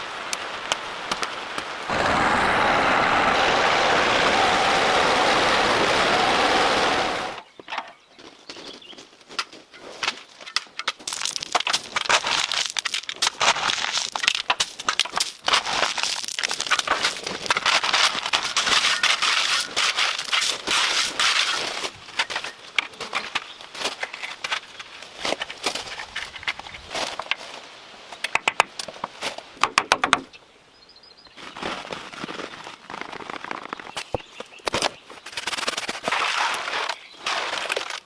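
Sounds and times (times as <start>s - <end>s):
motor running: 1.9s - 7.4s
dry crackling and snapping: 9.3s - 27.4s, 32.1s - 38.0s.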